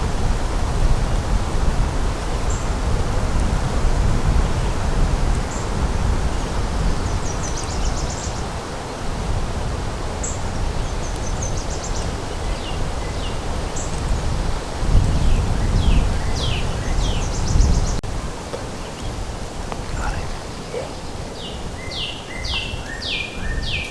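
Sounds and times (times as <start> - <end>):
wind blowing over microphone: 0.0 - 23.9
small birds chirping: 15.1 - 23.9.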